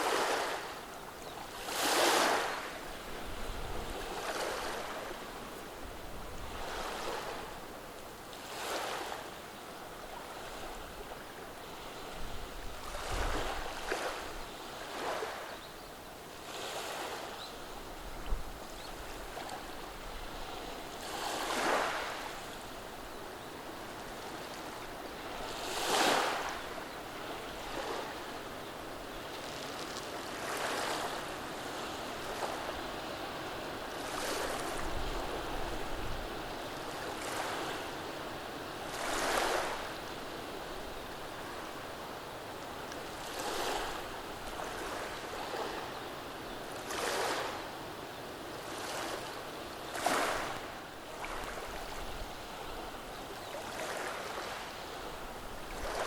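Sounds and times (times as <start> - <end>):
waves washing over cobblestones: 0.0 - 0.8, 48.6 - 53.0.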